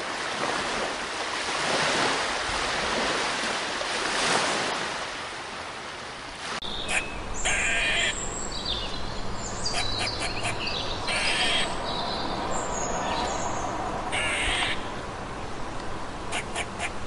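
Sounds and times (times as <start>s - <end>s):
crows cawing: 6.9s - 8.2s, 9.8s - 11.8s, 14.1s - 14.9s, 16.3s - 17.0s.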